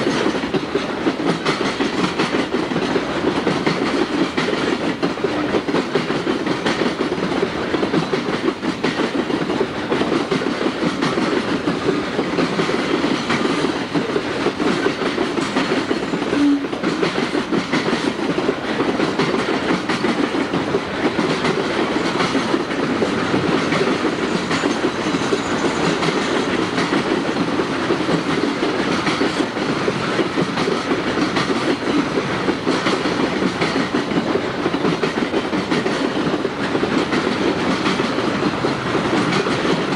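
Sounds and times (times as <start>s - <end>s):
freight car wheels clickety-clack: 0.0s - 39.9s.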